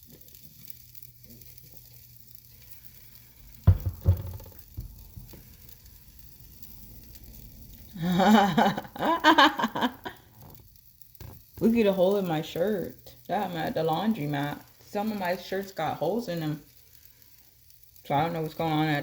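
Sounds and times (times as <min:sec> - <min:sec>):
sausages sizzling in a frying pan: 0:00.0 - 0:19.0
utensil knocking on pan: 0:03.7 - 0:05.0.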